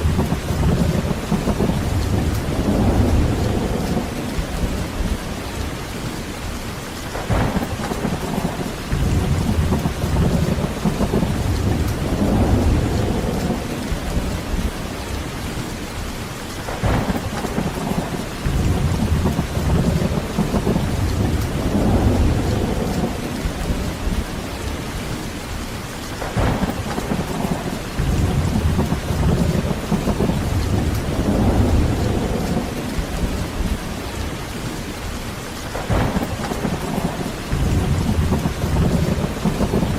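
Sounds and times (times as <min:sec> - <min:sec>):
thunderclap: 0:00.0 - 0:06.4, 0:07.0 - 0:25.6, 0:26.2 - 0:39.9
heavy rain falling: 0:00.0 - 0:39.9
thunder rumbling: 0:00.0 - 0:39.9.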